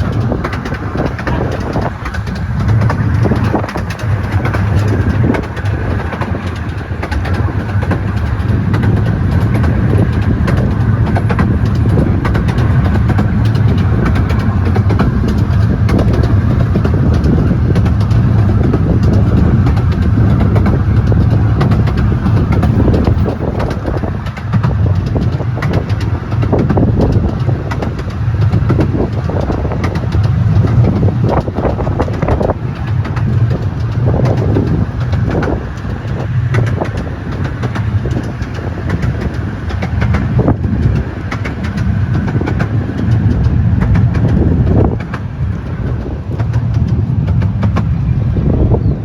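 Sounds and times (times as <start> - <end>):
moving vehicle rumble: 0.0 - 49.0.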